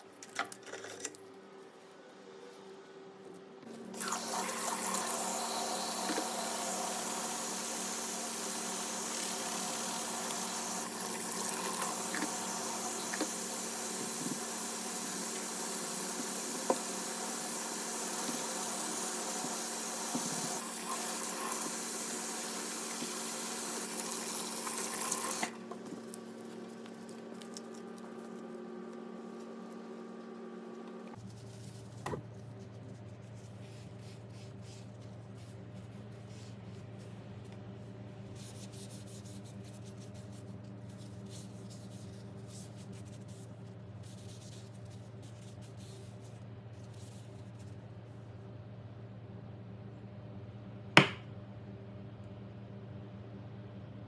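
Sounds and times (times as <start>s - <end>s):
water running from a tap: 4.0s - 25.6s.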